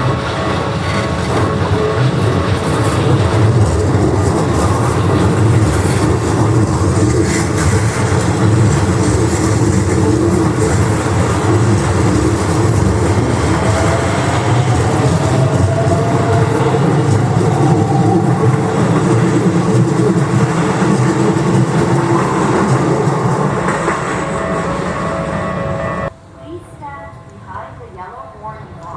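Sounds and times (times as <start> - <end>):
train wheels rumbling on rail: 0.0 - 26.1.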